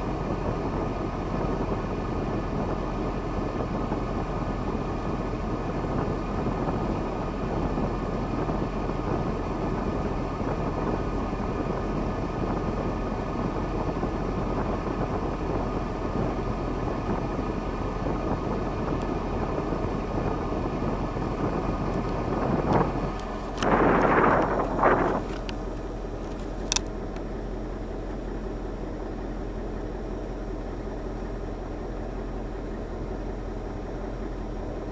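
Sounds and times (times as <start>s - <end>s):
diesel truck engine running: 0.0s - 34.9s.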